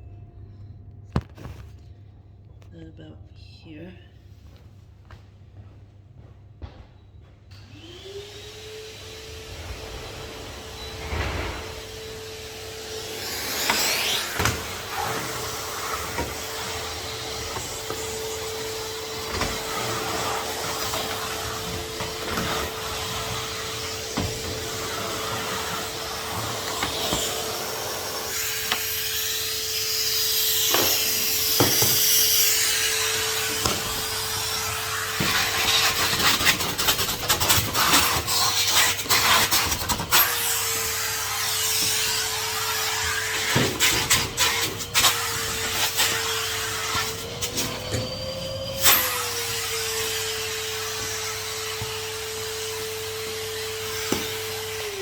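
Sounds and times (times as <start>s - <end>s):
vacuum cleaner motor whine: 7.5s - 55.0s
vacuum nozzle scraping and knocking: 10.6s - 29.4s, 30.6s - 40.3s.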